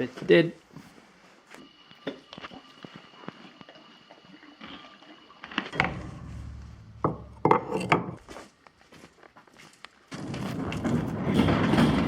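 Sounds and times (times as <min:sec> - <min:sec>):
low rumble: 0:05.8 - 0:08.3.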